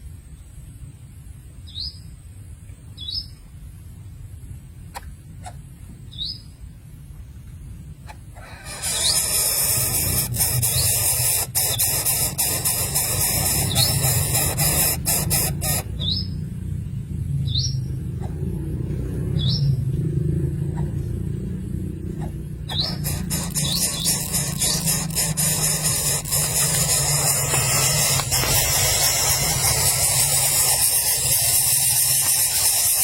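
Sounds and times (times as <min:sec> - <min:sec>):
bird chirping: 0:05.4 - 0:06.7, 0:08.1 - 0:16.6, 0:17.4 - 0:33.0
rushing hiss with clicks: 0:08.4 - 0:16.1, 0:22.7 - 0:33.0.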